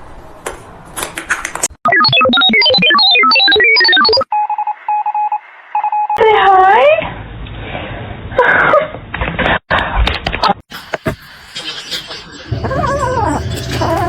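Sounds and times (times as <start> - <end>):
cat meowing: 12.6 - 14.0.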